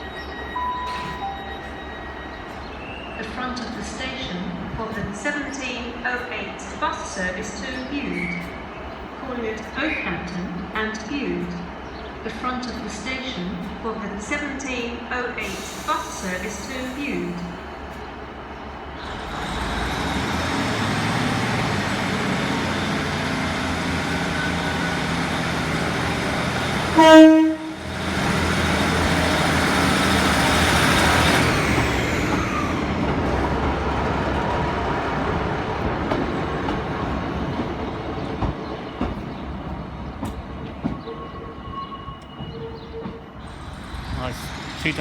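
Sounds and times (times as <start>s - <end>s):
diesel train engines: 0.0s - 45.0s
two-tone train horn: 26.8s - 28.0s.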